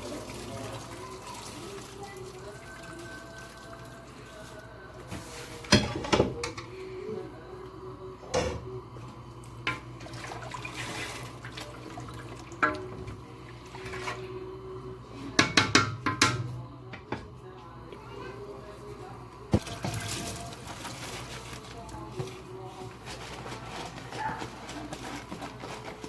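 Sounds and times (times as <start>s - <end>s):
water running: 0.0s - 6.2s, 9.0s - 14.8s, 18.7s - 26.0s
metal pot clanking: 12.6s - 13.2s, 15.4s - 17.3s.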